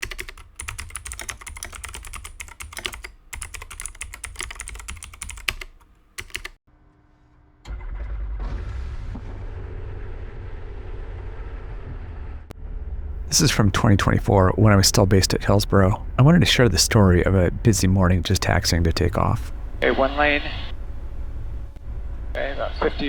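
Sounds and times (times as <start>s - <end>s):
keyboard typing clicks: 0.0s - 6.6s.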